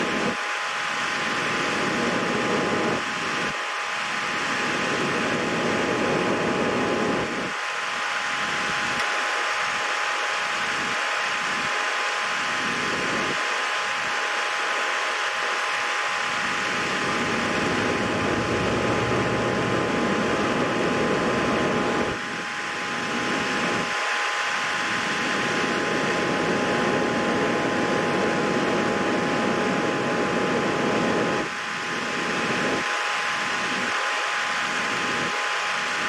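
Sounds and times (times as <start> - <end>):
faint whine tones: 0.0 - 36.0
fan-like whooshing: 16.3 - 22.2.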